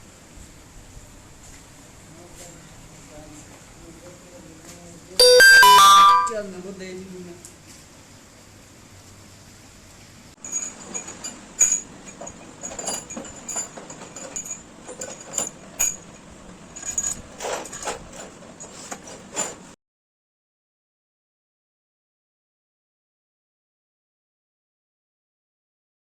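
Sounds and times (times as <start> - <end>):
metal tools clinking: 10.4 - 19.8.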